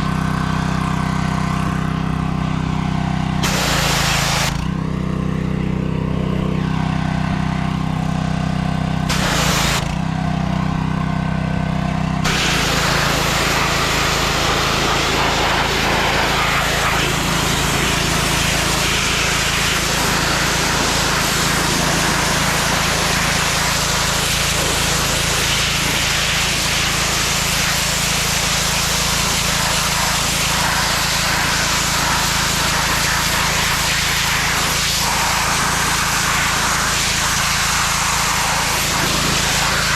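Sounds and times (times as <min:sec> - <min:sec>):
small engine running: 0:00.0 - 0:39.9
loud rushing hiss: 0:03.4 - 0:04.6, 0:09.1 - 0:09.9, 0:12.2 - 0:39.9.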